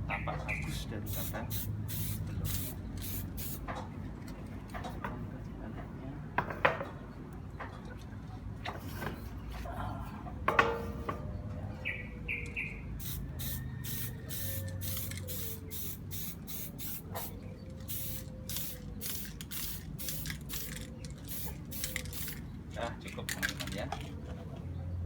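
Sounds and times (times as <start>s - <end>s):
spray paint can hissing: 1.1s - 3.7s, 13.0s - 22.4s.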